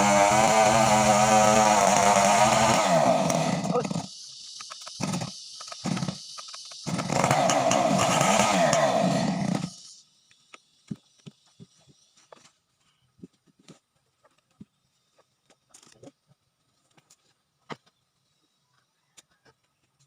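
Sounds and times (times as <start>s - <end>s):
chainsaw engine revving: 0.0s - 4.2s, 5.0s - 9.9s.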